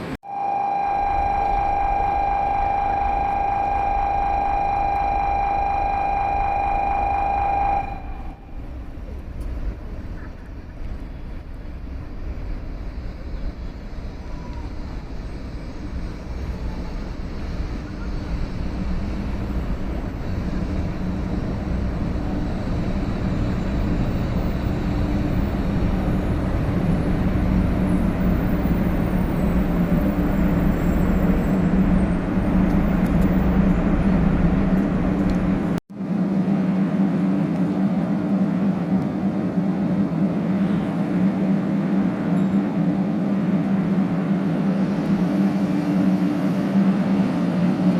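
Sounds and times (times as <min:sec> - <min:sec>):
bullet train running hum: 0:00.0 - 0:47.9.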